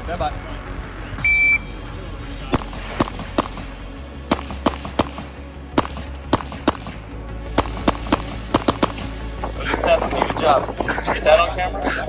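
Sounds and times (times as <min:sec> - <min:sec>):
music: 0:00.0 - 0:12.0
gunshots: 0:02.4 - 0:07.0, 0:07.6 - 0:11.4.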